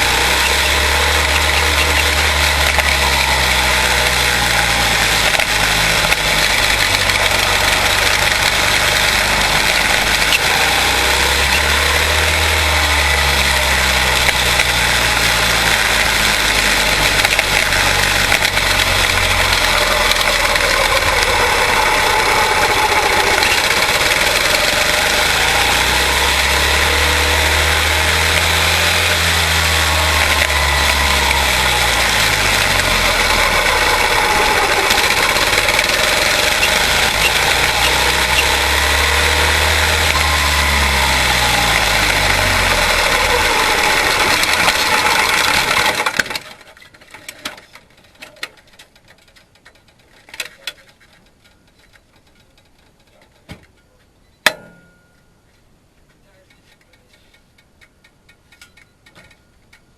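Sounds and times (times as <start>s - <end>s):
race car engines passing: 0.0s - 46.3s.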